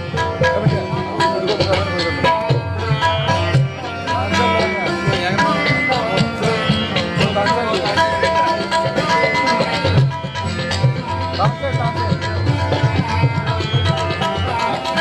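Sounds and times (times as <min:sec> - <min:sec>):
keyboard playing sliding melody: 0:00.0 - 0:15.0
tabla drumming: 0:00.0 - 0:15.0.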